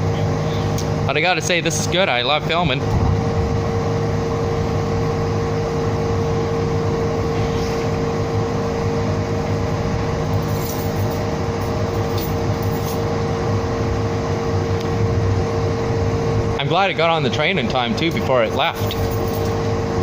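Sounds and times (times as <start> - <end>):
constant whining tone: 0.0 - 20.0
train car rumble and hum: 0.0 - 20.0.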